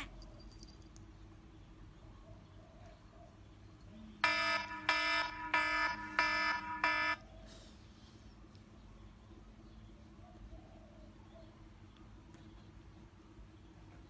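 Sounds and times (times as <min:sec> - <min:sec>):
electronic alarm beeping: 0:04.2 - 0:07.2.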